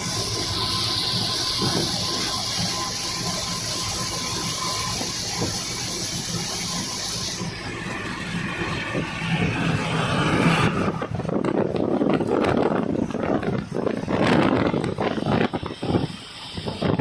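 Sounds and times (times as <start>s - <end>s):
high hiss: 0.0s - 10.5s
moving vehicle rumble: 0.0s - 17.0s
rapid crackling: 0.0s - 17.0s.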